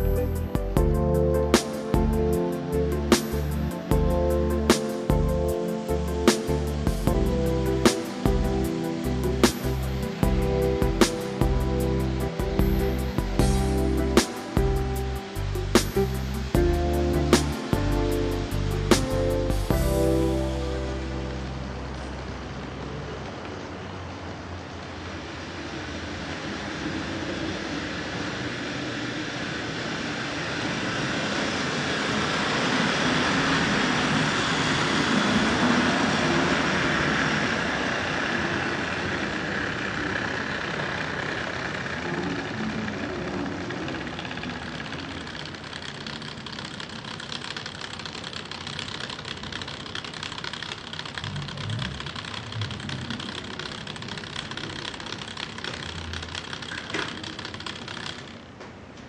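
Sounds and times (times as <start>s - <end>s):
model train motor whirring: 23.2s - 58.6s.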